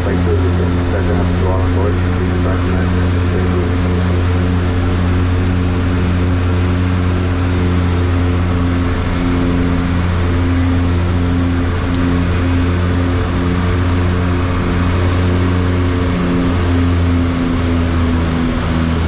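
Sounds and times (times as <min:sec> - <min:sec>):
aircraft engines droning: 0:00.0 - 0:19.0.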